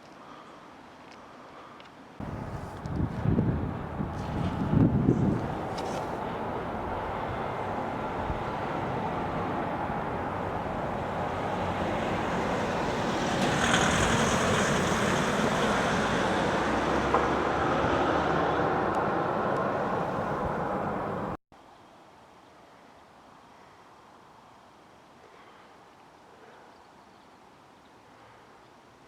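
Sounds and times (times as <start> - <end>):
vehicle passing close: 2.2 - 21.4.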